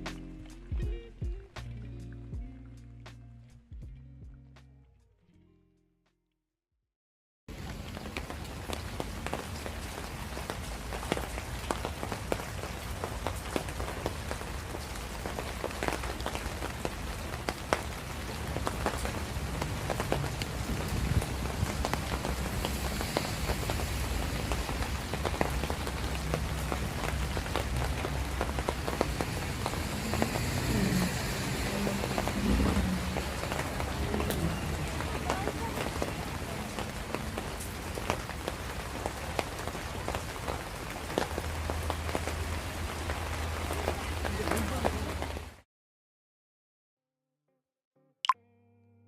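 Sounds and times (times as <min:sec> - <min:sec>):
rain drops ticking on hard surfaces: 0:07.5 - 0:45.6.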